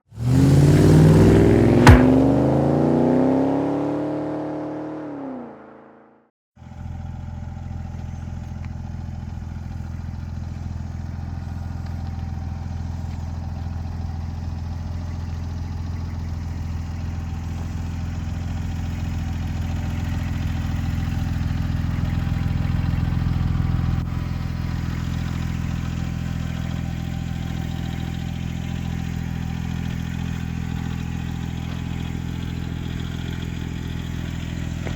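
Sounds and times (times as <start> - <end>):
car engine revving: 0.1 - 5.6
car engine idling: 0.2 - 2.9, 6.6 - 34.9
sharp engine crack: 0.6 - 2.8.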